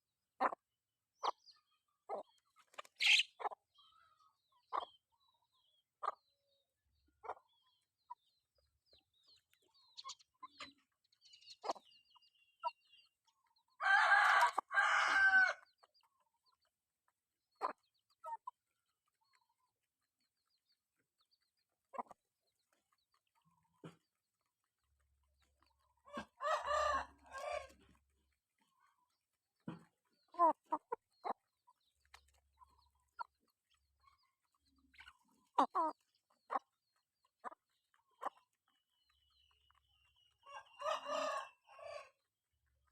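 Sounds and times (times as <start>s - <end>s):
chickens clucking: 0.4s - 42.9s
chicken drawn-out call: 3.0s - 3.3s, 13.8s - 15.7s, 26.0s - 28.0s, 40.4s - 42.2s.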